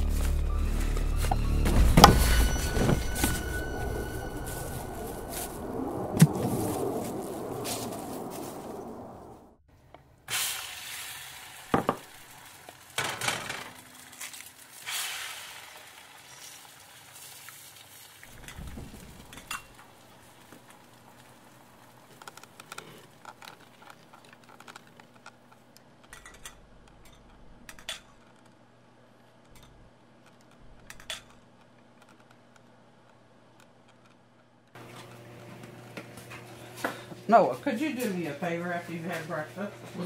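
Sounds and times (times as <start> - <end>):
food sizzling in a frying pan: 10.3 - 18.4
utensils and dishes clinking: 26.1 - 28.1.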